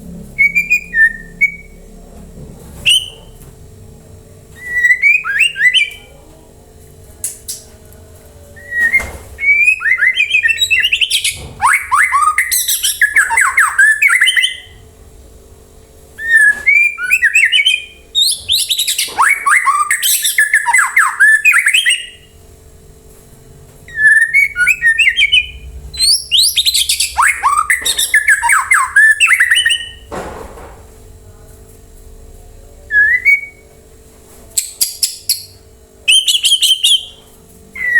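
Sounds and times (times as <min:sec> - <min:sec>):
songbird whistling and trilling: 0:00.4 - 0:01.8, 0:02.8 - 0:03.3, 0:04.6 - 0:06.1, 0:08.6 - 0:14.8, 0:16.2 - 0:22.3, 0:23.9 - 0:30.1, 0:32.9 - 0:33.6, 0:34.6 - 0:37.2.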